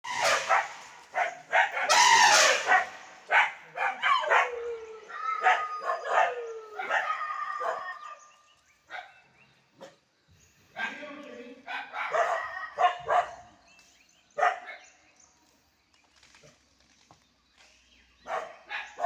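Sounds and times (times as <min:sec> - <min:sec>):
dog barking: 0:00.1 - 0:04.6, 0:10.8 - 0:11.1, 0:11.7 - 0:13.5, 0:14.4 - 0:14.9, 0:18.2 - 0:19.0.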